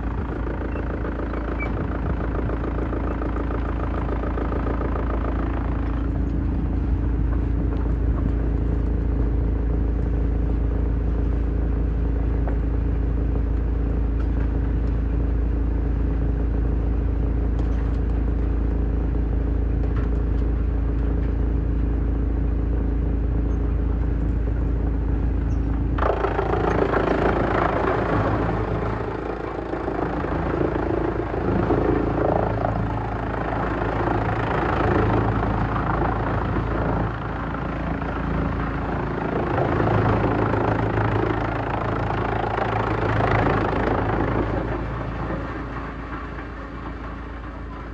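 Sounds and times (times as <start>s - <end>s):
wood shredder engine drone: 0.0s - 47.9s.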